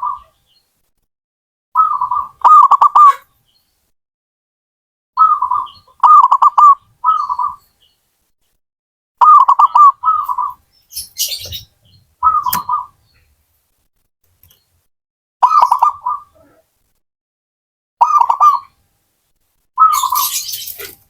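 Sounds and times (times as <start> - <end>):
dove cooing: 0.0 - 0.4, 1.8 - 3.3, 5.2 - 7.6, 9.2 - 10.6, 12.2 - 13.0, 15.4 - 16.6, 18.0 - 18.7, 19.8 - 21.0
sharp click: 12.5 - 12.7.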